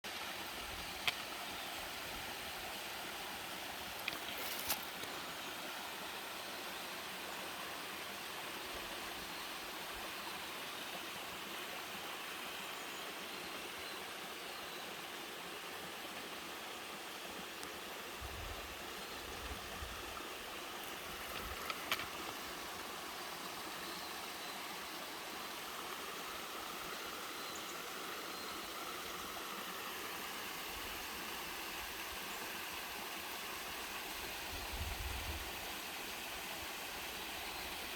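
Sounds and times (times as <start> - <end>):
stream flowing over rocks: 0.0 - 37.9.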